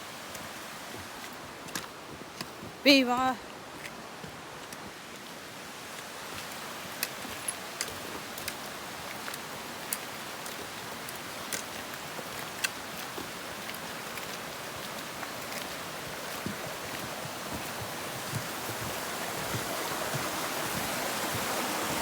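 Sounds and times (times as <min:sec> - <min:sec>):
waterfall rushing: 0:05.6 - 0:22.0.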